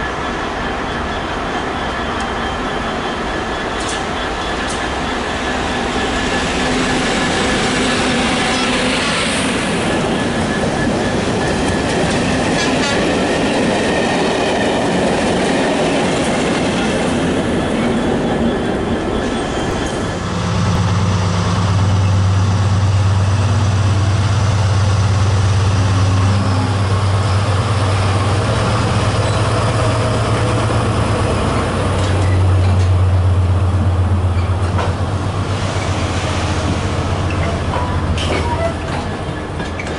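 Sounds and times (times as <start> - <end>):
thin squeal from rails: 0.0 - 13.2, 37.1 - 39.9
diesel locomotive engine drone: 0.0 - 39.9
train wheels clattering: 3.2 - 20.2, 27.0 - 39.9.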